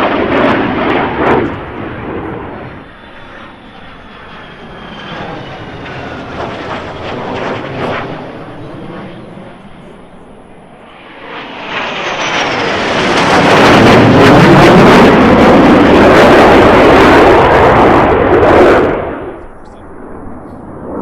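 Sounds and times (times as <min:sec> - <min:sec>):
jet aircraft flying past: 0:00.0 - 0:21.0
faint high whine: 0:01.5 - 0:11.8.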